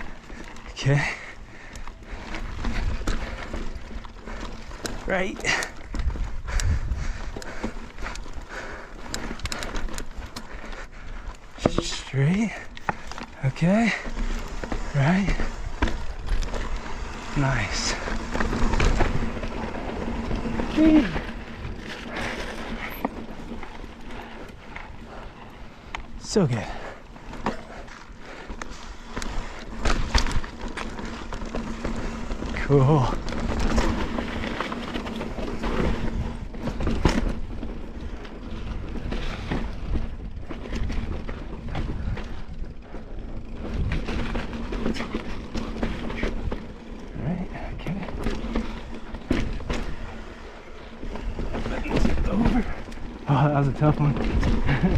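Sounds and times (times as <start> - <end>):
bike tyre and frame rattle: 0.0 - 54.9
wind buffeting microphone: 5.8 - 11.3
wind on microphone: 5.9 - 7.3.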